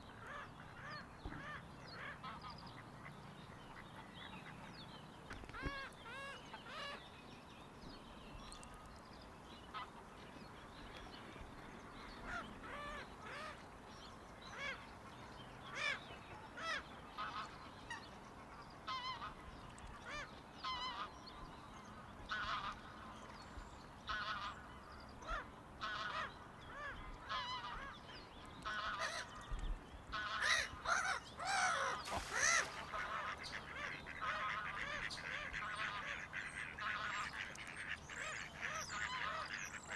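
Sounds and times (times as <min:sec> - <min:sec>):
geese honking: 0:30.4 - 0:39.5.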